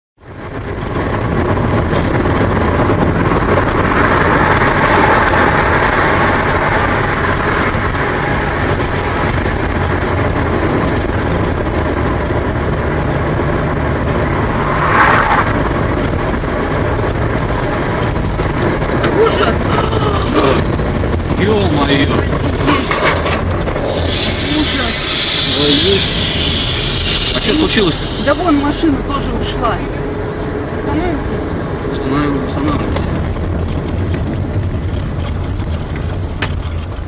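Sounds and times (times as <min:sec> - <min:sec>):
truck engine and road noise: 0:00.2 - 0:37.0.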